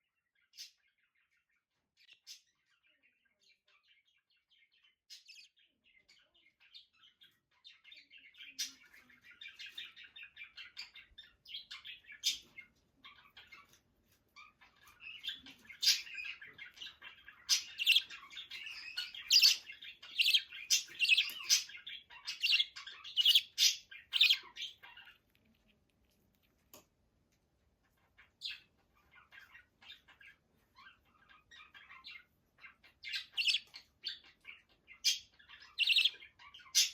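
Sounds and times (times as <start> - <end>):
pet bird chirping and squawking: 7.6 - 26.6, 27.8 - 36.9.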